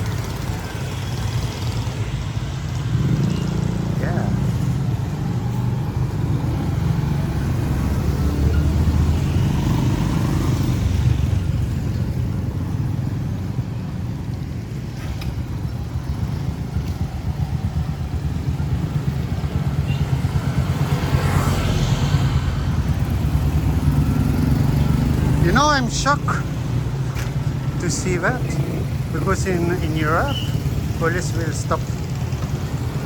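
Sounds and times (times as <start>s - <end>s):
motorcycle engines in traffic: 0.0s - 33.0s
vehicle passing close by: 2.8s - 11.6s, 19.2s - 33.0s.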